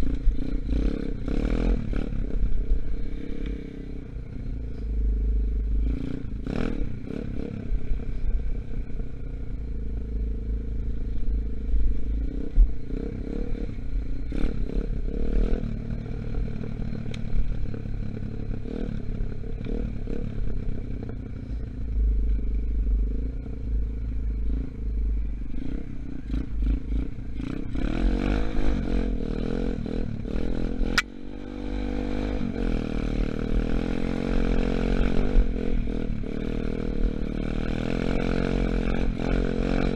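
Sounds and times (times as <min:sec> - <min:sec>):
dirt bike engine revving: 0:00.0 - 0:03.6, 0:25.5 - 0:39.9
sharp click: 0:30.9 - 0:31.1.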